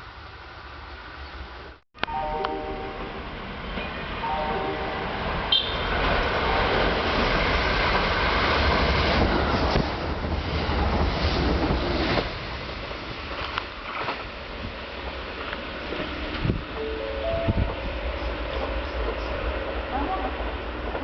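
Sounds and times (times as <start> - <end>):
electric train passing: 0.2 - 21.0.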